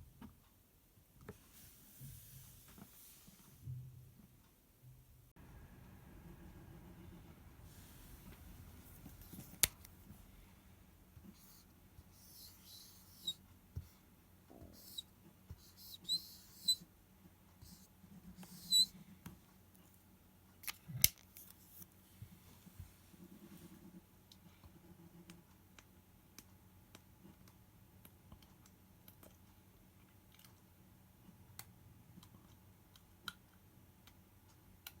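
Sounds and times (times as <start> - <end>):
squeaky plastic scrapes: 12.2 - 13.4, 14.8 - 15.0, 15.6 - 16.8, 18.4 - 19.0.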